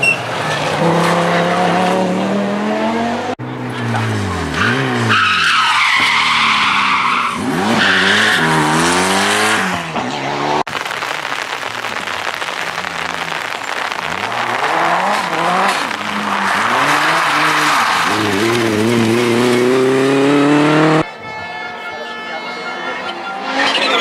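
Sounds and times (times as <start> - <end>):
rally car engines revving: 0.0 - 10.7, 12.7 - 21.1, 22.6 - 24.0
tyres on gravel: 10.7 - 21.0.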